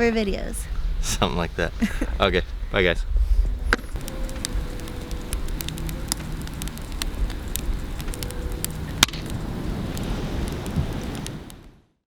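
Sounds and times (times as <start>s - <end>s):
low steady rumble: 0.0s - 11.5s
campfire crackling and popping: 3.5s - 11.8s.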